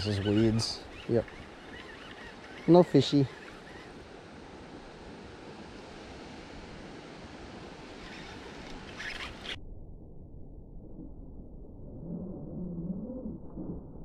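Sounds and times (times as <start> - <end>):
stormy wind and rain: 0.0 - 9.6
brief crackles: 8.0 - 9.6.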